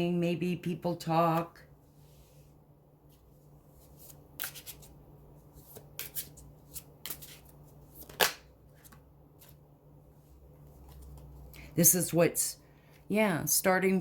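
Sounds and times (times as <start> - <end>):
cards being shuffled: 3.1 - 9.6.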